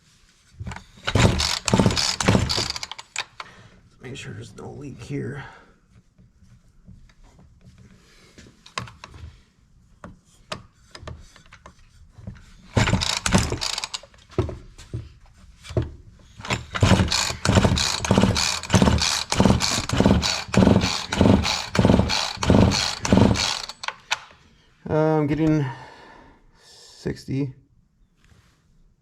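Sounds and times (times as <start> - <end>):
chainsaw recoil starter pulls: 1.0 - 3.5, 12.7 - 14.2, 16.4 - 24.4.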